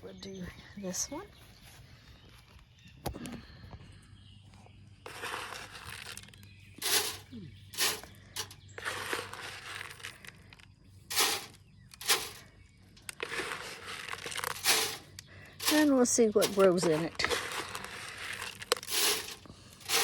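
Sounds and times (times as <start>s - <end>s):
seed rustling as it lands: 11.1s - 20.0s.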